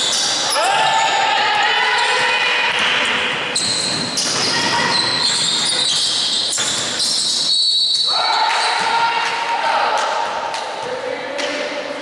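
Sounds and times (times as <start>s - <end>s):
voices in a hall: 0.0s - 12.0s
sneakers squeaking on court: 3.4s - 9.0s.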